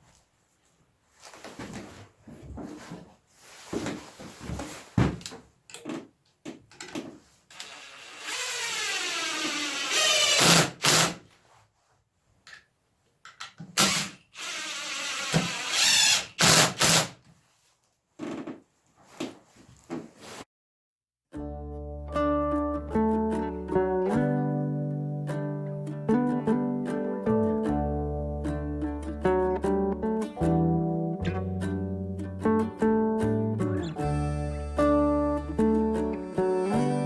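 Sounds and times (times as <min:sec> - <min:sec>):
knocks and handling noises: 0:01.2 - 0:07.5
bandsaw cutting log: 0:07.5 - 0:11.2, 0:13.8 - 0:17.2.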